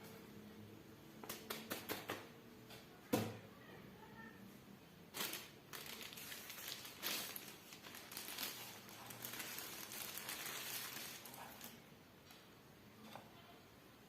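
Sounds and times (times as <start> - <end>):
packaging rustling and crinkling: 5.1 - 11.8.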